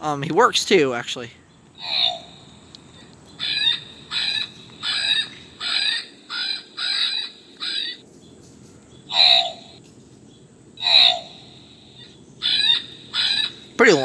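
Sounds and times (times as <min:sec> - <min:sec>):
recorded crow calls from toy: 0:01.8 - 0:08.0, 0:09.1 - 0:09.8, 0:10.8 - 0:14.0.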